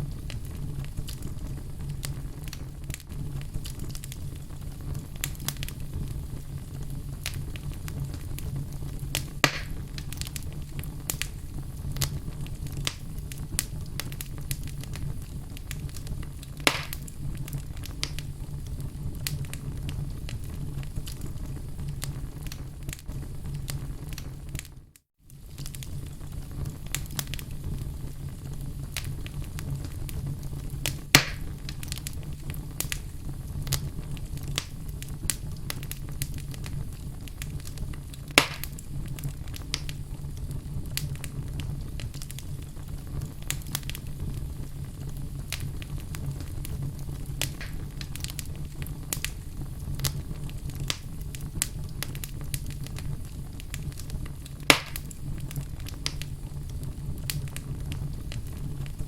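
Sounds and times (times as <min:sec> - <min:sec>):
fire crackling: 0:00.0 - 0:59.0
fire low rumble: 0:00.0 - 0:59.0
loud sharp wood pops: 0:09.4 - 0:09.8, 0:16.7 - 0:17.0, 0:31.2 - 0:31.5, 0:38.4 - 0:38.8, 0:54.7 - 0:55.1.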